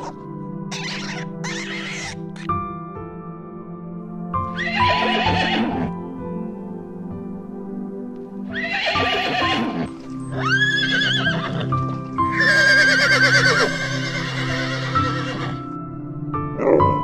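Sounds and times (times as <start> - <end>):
soft background music: 0.0 - 17.0
horse whinnying: 4.5 - 5.9, 8.5 - 15.6.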